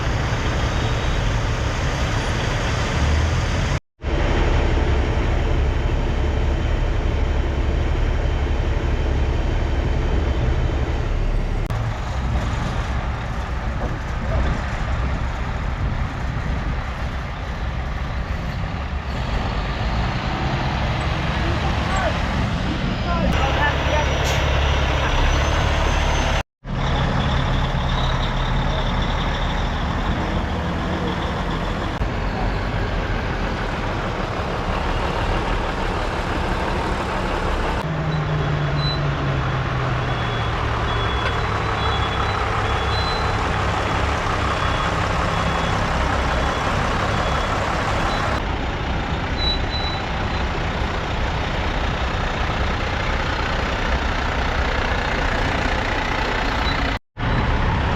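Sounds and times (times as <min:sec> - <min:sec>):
diesel truck engines running: 0:00.0 - 0:57.9.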